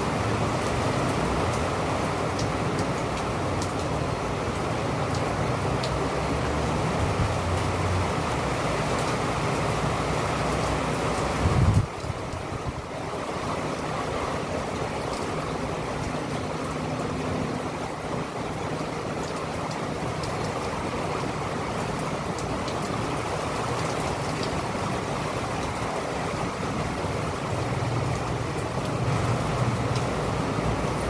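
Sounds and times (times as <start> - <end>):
raindrops ticking: 0.0 - 31.0
steady rain falling: 0.0 - 31.0.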